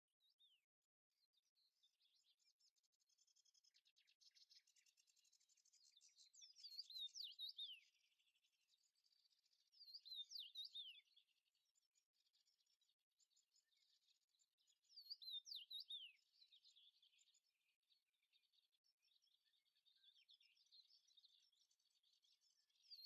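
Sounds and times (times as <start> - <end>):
songbird twittering: 1.3 - 23.0.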